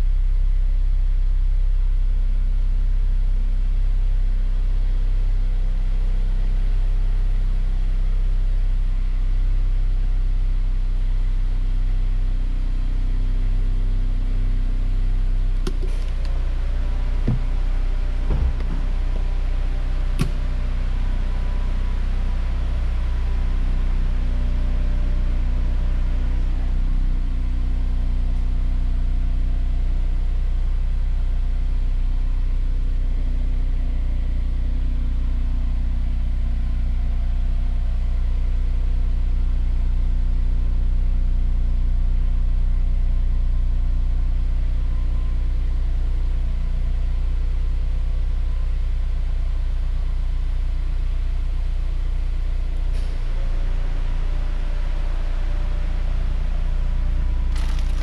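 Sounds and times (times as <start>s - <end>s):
car engine idling: 0.1s - 58.0s
sharp clicks and knocks: 15.6s - 16.4s, 17.2s - 17.5s, 18.3s - 18.9s, 20.2s - 20.4s.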